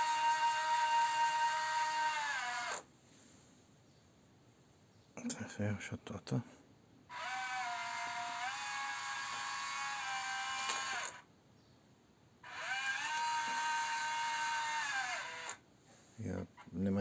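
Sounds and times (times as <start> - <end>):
small electric motor whining: 0.0 - 2.9, 7.1 - 11.3, 12.4 - 15.6.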